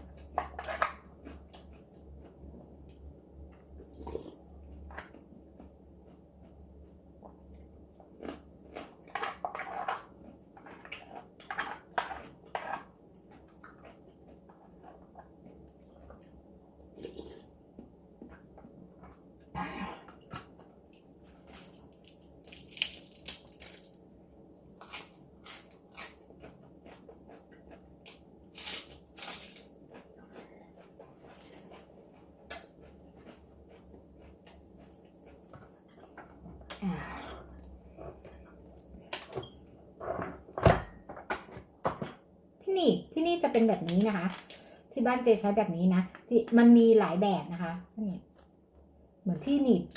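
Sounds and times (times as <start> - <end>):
chewing and crunching: 0.0 - 24.0, 24.8 - 36.8
crab shell cracking: 21.8 - 24.0.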